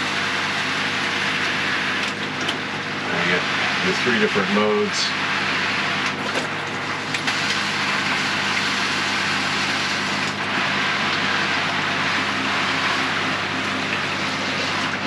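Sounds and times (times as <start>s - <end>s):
shower head spraying water: 7.1s - 15.0s.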